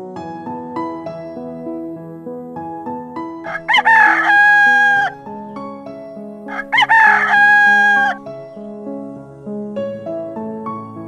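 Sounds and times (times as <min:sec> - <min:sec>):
soft piano music: 0:00.0 - 0:11.0
rooster crowing: 0:03.4 - 0:05.2, 0:06.5 - 0:08.3.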